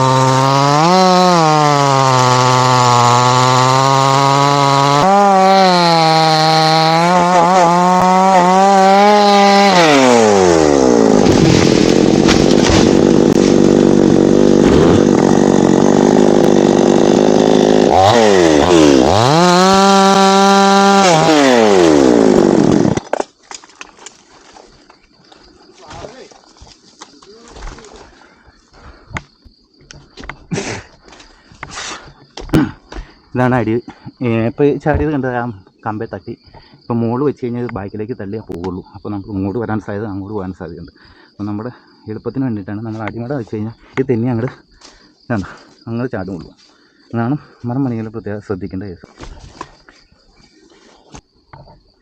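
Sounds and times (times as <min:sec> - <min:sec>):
chainsaw cutting wood: 0:00.0 - 0:23.6.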